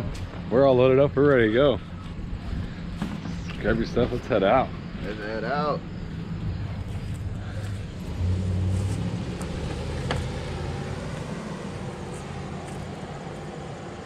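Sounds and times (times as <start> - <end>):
vehicle engine running: 2.9 - 14.0.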